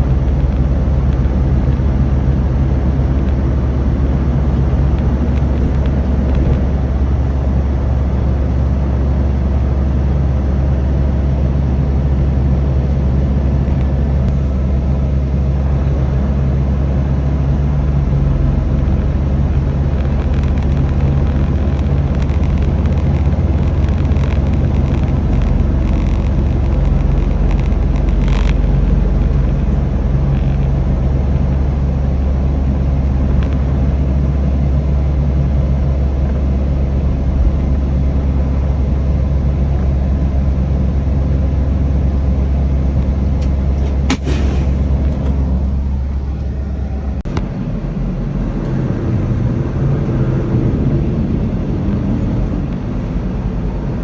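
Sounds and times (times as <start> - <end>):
truck diesel engine droning: 0.0 - 54.0
sharp click: 43.4 - 45.7.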